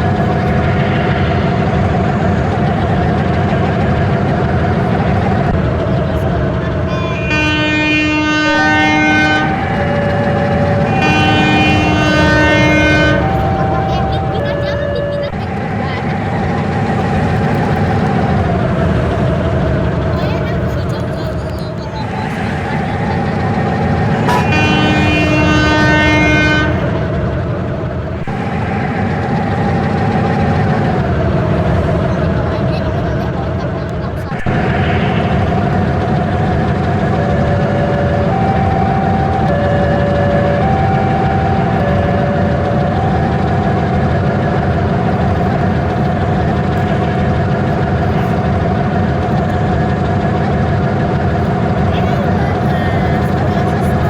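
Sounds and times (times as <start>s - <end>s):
low rumble: 0.0s - 51.8s
steady mid-pitched tones: 0.0s - 54.0s
train running heavy drone: 0.0s - 54.0s
train horn blast: 6.8s - 18.3s, 22.2s - 30.5s, 37.1s - 43.4s.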